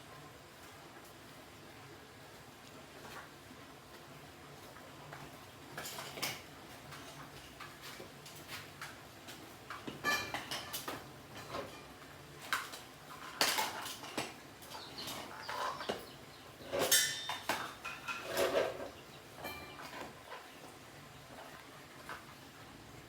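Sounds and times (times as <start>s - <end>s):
tools and metal parts clinking: 13.1s - 20.2s.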